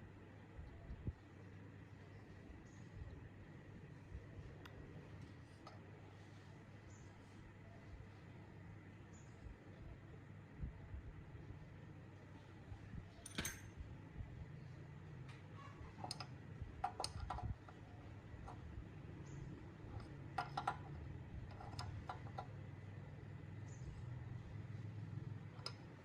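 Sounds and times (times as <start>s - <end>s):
low steady hum: 0.0s - 26.0s
small parts clicking and tapping: 13.2s - 13.8s, 15.3s - 22.7s, 25.4s - 26.0s.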